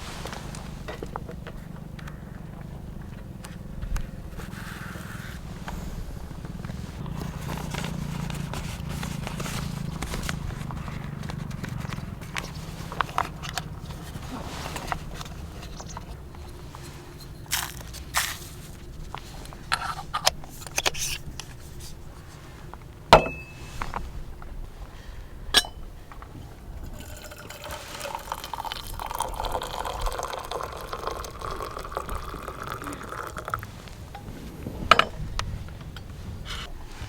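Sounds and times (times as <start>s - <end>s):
cups or utensils clinking: 23.2s - 23.8s, 25.6s - 26.0s, 26.8s - 33.6s
liquid pouring into a vessel: 26.8s - 33.6s.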